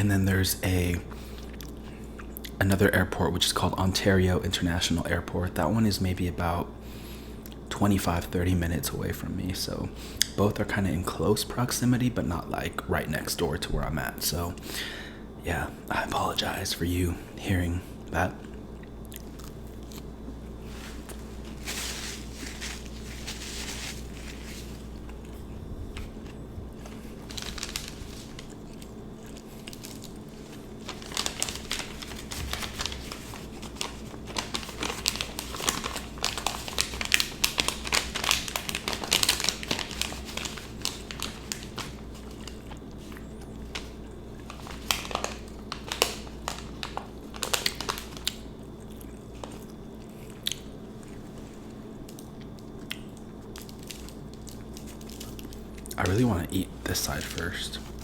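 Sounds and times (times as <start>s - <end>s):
paper wrapper crinkling: 19.2s - 48.4s, 53.5s - 58.0s.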